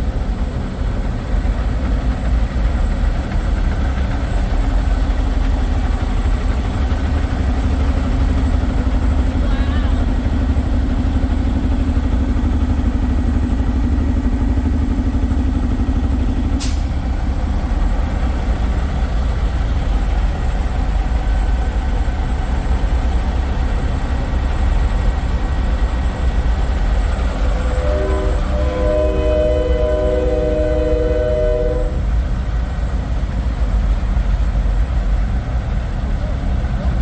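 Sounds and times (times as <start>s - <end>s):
diesel trucks idling: 0.0s - 37.0s
held tone: 26.8s - 32.0s
multi-note air horn: 27.1s - 32.1s.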